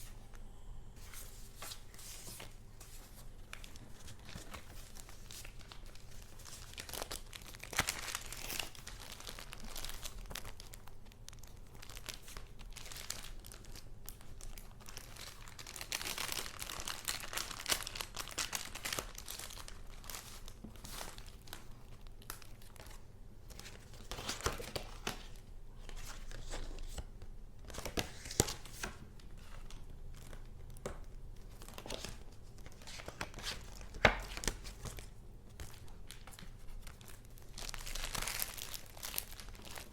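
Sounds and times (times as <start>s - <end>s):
paper rustling and crinkling: 1.0s - 10.7s, 11.4s - 27.1s.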